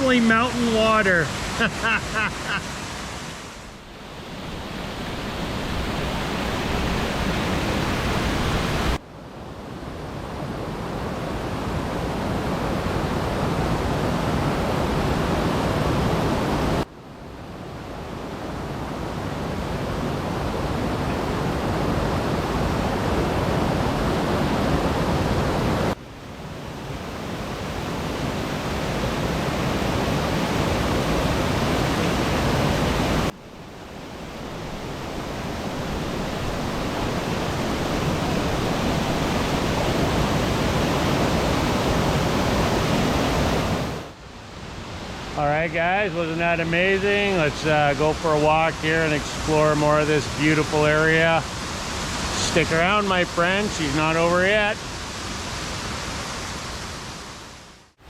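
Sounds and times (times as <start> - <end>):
waterfall rushing: 0.0 - 9.0, 34.3 - 44.0, 45.2 - 57.3.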